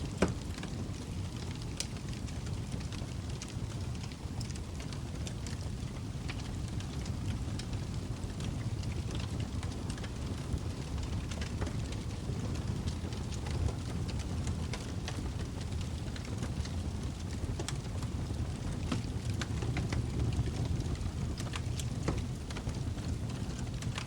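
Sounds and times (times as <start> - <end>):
burning wood crackling and popping: 0.0 - 24.0
log fire burning: 0.0 - 24.0.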